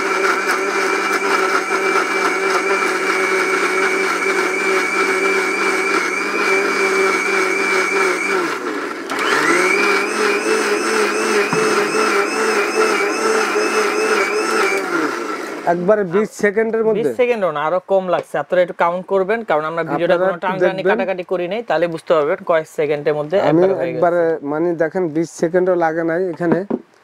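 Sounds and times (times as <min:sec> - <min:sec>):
blender motor whining: 0:00.0 - 0:15.9.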